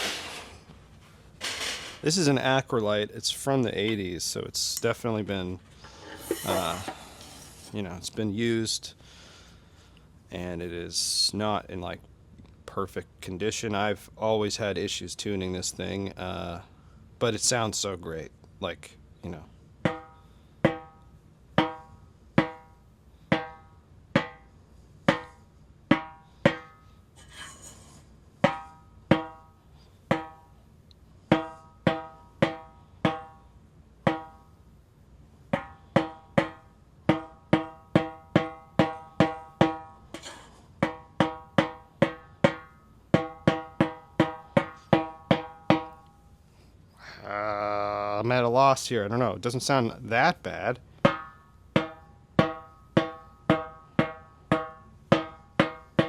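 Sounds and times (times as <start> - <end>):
snare drum strokes: 0.0 - 0.6, 6.0 - 7.8.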